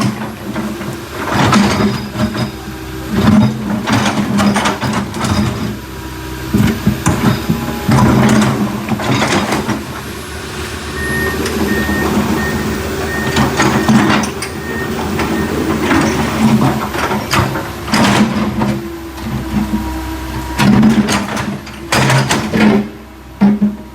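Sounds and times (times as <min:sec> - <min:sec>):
machine clanks and scrapes: 0:00.0 - 0:05.8, 0:06.5 - 0:10.1, 0:11.0 - 0:19.8, 0:20.4 - 0:23.9
diesel engine running: 0:00.0 - 0:23.9
warning alarm beeps: 0:10.9 - 0:16.4.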